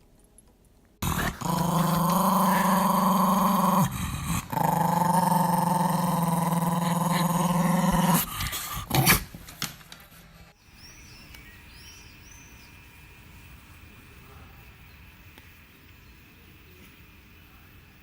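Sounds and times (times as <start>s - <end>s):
dog growling: 1.0s - 9.1s.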